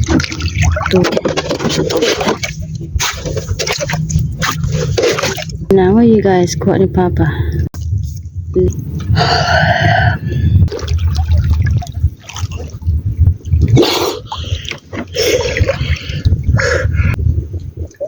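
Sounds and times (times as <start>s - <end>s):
steady low rumble: 0.0s - 18.0s
water splashing and gurgling: 0.0s - 18.0s.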